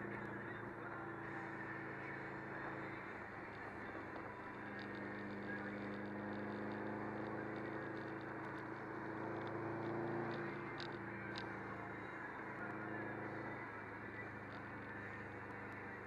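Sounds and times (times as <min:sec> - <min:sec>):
car engine cruising: 0:00.0 - 0:16.0
tyre and road noise: 0:00.0 - 0:16.0.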